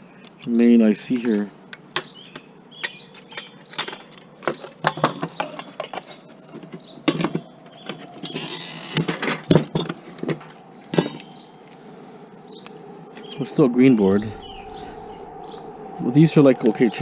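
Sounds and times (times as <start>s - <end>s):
plastic and metal parts rattling: 2.0s - 11.3s.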